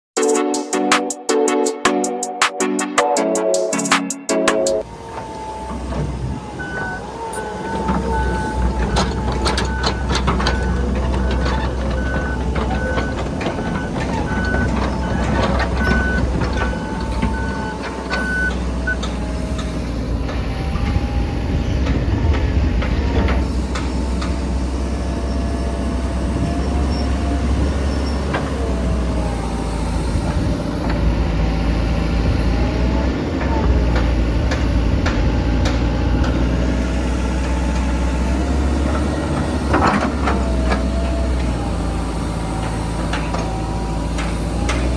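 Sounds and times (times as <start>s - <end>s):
travel alarm beeping: 4.7s - 22.2s
excavator diesel engine: 4.8s - 44.9s
hydraulic whine: 4.8s - 44.9s.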